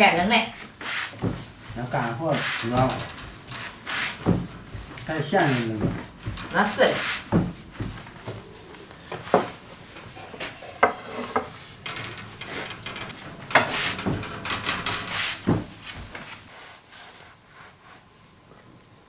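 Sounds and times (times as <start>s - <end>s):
rolling pin rolling dough: 0.8s - 16.5s
wood knocking on wood: 2.7s - 5.1s, 5.7s - 8.4s, 10.4s - 16.3s.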